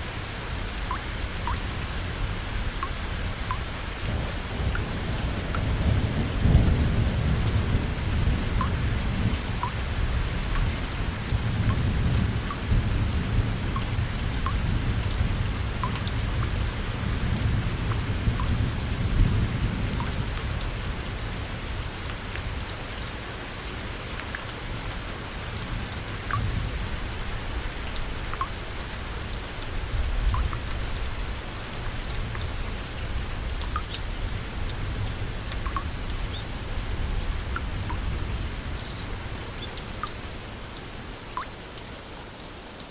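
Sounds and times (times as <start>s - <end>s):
steady rain: 0.0s - 42.9s
low rolling thunder: 4.1s - 20.6s.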